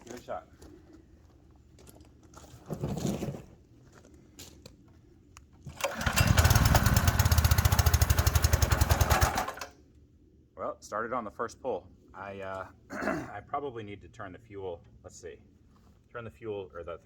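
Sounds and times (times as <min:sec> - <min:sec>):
small gas engine running: 0:05.7 - 0:09.7.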